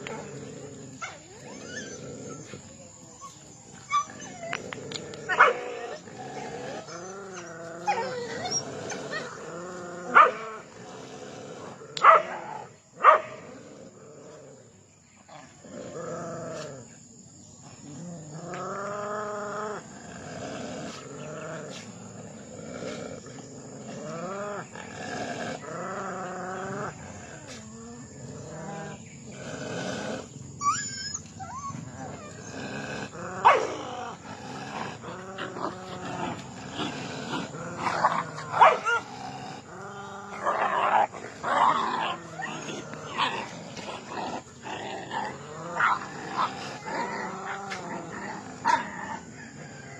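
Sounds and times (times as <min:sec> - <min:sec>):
dogs growling and whining: 0:00.0 - 0:49.9
dog barks: 0:05.3 - 0:05.8, 0:10.1 - 0:10.5, 0:12.0 - 0:13.4, 0:33.4 - 0:33.8, 0:38.5 - 0:39.0.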